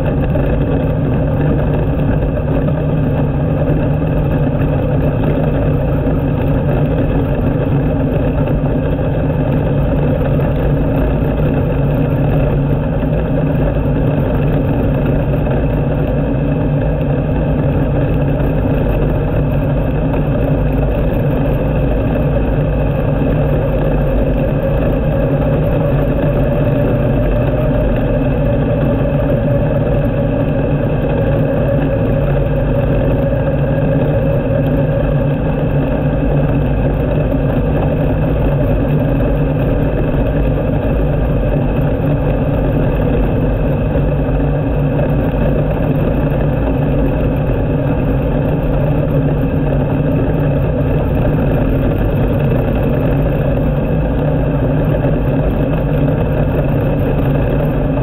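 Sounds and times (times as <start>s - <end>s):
race car engine running: 0.0s - 58.0s.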